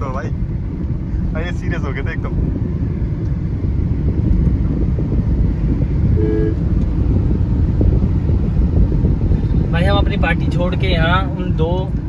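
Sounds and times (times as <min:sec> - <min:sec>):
tyre and wind noise in car: 0:00.0 - 0:12.0
brief short tone: 0:06.2 - 0:06.6.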